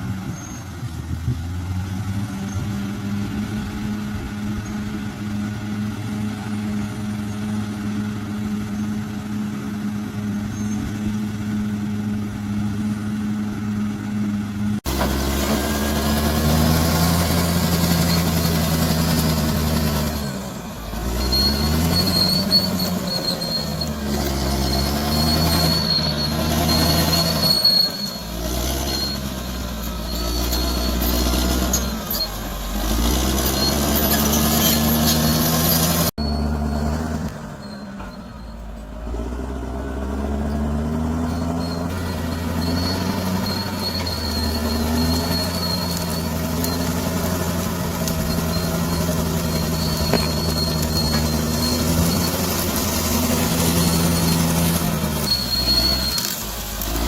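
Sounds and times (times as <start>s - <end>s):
high metal squeal: 0.0s - 0.9s, 14.9s - 57.0s
bulldozer diesel engine: 0.0s - 57.0s.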